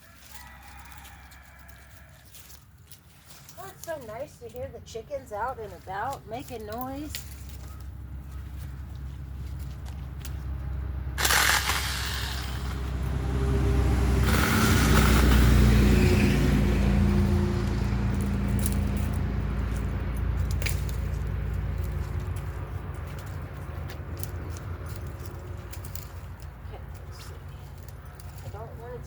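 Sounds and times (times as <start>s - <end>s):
vehicle passing by: 7.1s - 29.0s.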